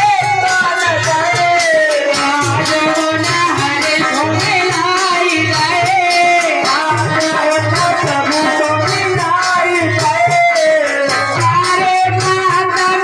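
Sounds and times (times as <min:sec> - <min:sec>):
light rhythmic percussion: 0:00.0 - 0:13.0
person singing: 0:00.0 - 0:13.0.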